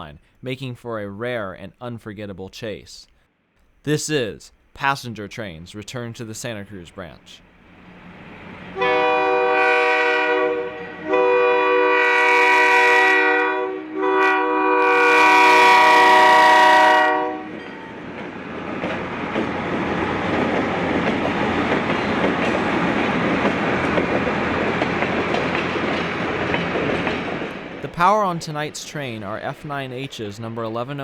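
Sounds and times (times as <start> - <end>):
train rumbling and clattering on rails: 7.6 - 9.0, 17.4 - 30.2
locomotive air horn blasts: 8.8 - 18.0.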